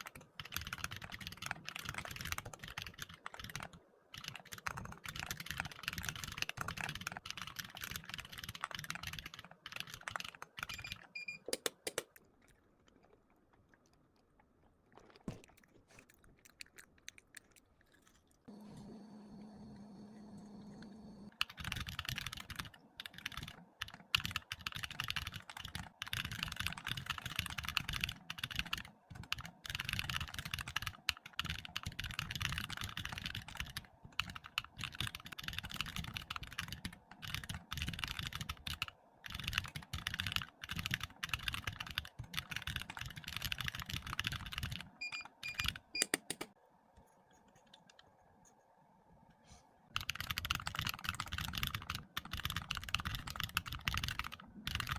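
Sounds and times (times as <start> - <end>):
typing on computer keyboard: 0.0 - 12.2, 21.3 - 46.6, 49.9 - 54.9.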